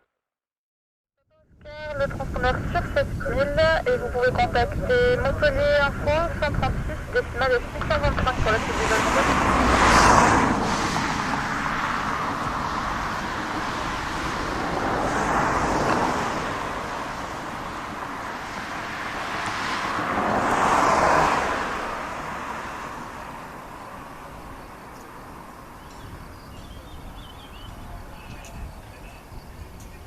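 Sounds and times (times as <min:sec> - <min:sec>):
passing vehicles: 0:01.6 - 0:30.0.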